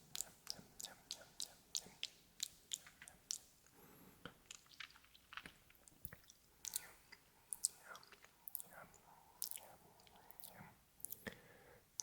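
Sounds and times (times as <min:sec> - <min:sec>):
wet mouth clicks and smacks: 0:00.1 - 0:03.5, 0:04.2 - 0:11.4.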